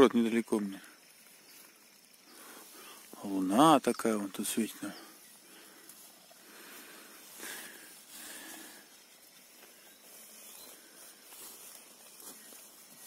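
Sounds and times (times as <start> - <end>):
bonfire burning with hiss: 0.0 - 13.0.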